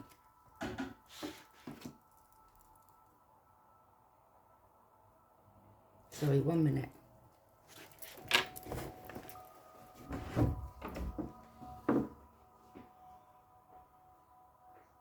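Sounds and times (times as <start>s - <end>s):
knocks and bumps in a room: 0.6s - 1.1s, 10.0s - 12.9s.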